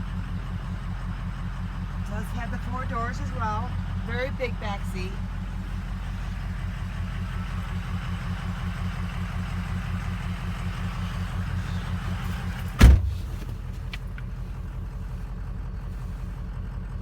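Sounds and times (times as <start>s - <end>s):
diesel engine idling: 0.0s - 17.0s
loud thump: 12.8s - 13.6s.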